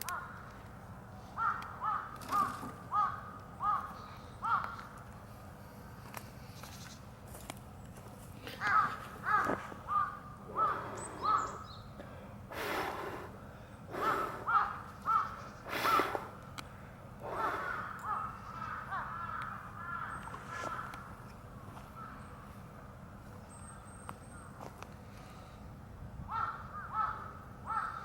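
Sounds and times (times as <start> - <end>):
crows cawing: 0.0 - 0.5, 1.3 - 5.0, 8.5 - 22.6, 26.3 - 28.0.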